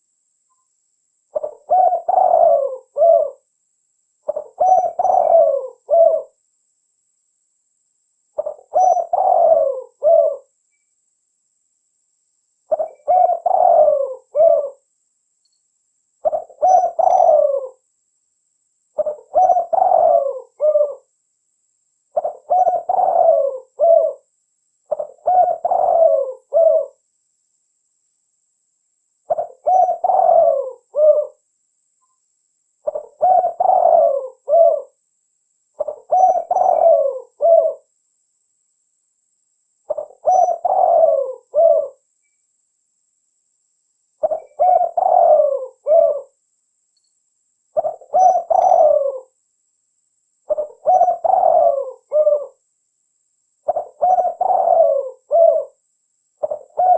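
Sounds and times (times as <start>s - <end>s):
dove cooing: 1.3s - 3.5s, 4.2s - 6.4s, 8.4s - 10.6s, 12.7s - 14.8s, 16.2s - 17.8s, 19.0s - 21.1s, 22.1s - 24.3s, 24.9s - 27.0s, 29.3s - 31.4s, 32.8s - 35.0s, 35.8s - 37.9s, 39.9s - 42.0s, 44.2s - 46.4s, 47.8s - 49.4s, 50.5s - 52.6s, 53.6s - 55.8s, 56.4s - 56.9s.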